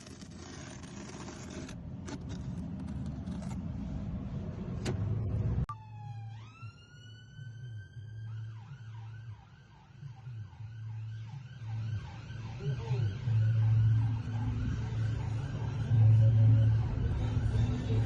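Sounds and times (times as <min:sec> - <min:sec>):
scraping and rustling: 0:00.0 - 0:04.1
emergency vehicle siren: 0:05.7 - 0:18.0
low engine-like hum: 0:12.5 - 0:18.0.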